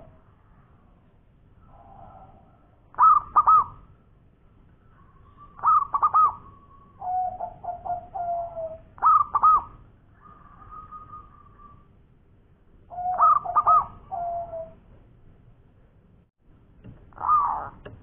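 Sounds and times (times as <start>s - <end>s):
dove cooing: 2.9s - 3.8s, 5.0s - 11.9s, 12.9s - 14.8s, 17.2s - 17.8s.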